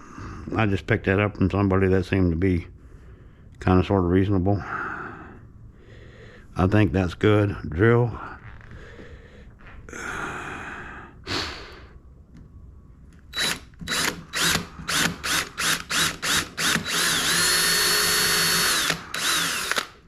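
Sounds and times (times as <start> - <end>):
power drill driving screw: 13.3 - 20.0.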